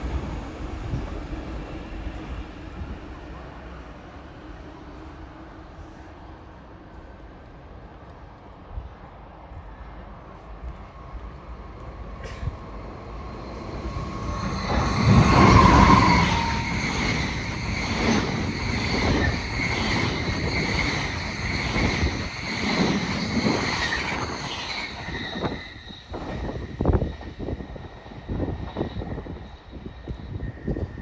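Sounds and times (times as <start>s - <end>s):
train passing on rails: 0.0s - 31.0s
high-pitched ringing tones: 11.1s - 26.8s.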